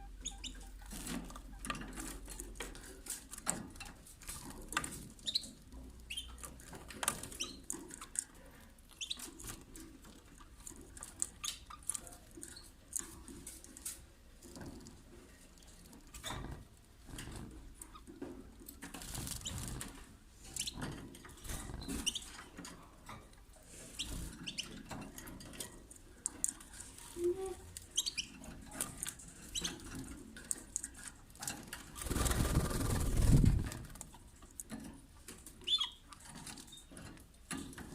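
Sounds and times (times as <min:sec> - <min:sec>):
bird wings fluttering: 0:32.0 - 0:34.1.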